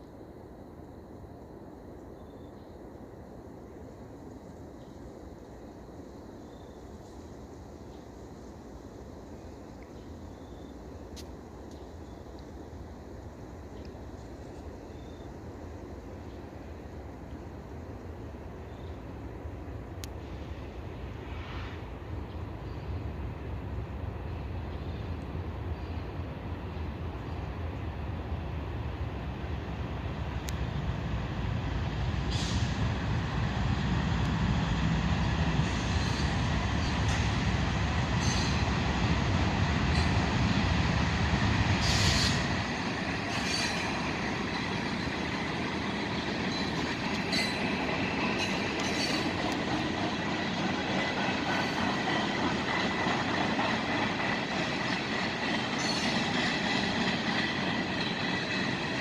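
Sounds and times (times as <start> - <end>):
train cars rumbling on rails: 4.9 - 59.0
wheel squeal: 55.7 - 56.5.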